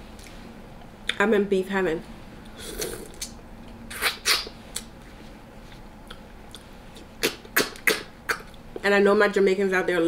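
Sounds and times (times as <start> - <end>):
mouth smacks and clicks: 2.8 - 5.0, 6.0 - 8.6
person chewing wetly: 6.0 - 8.6.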